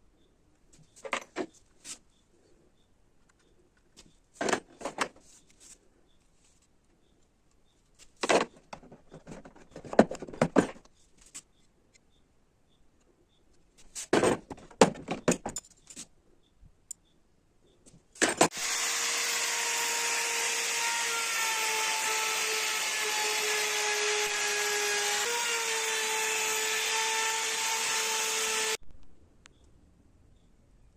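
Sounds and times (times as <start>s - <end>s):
handling clicks and knocks: 14.2s - 16.0s
wood router motor whining: 18.5s - 28.8s.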